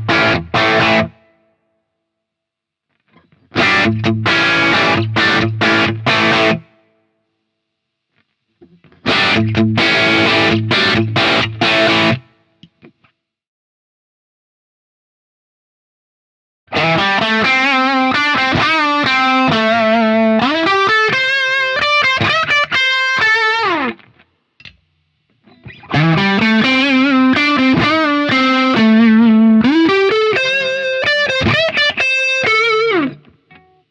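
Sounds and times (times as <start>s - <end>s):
distorted electric guitar riff: 0.0s - 1.3s, 3.1s - 6.7s, 8.6s - 12.3s, 16.7s - 24.2s, 25.4s - 33.8s.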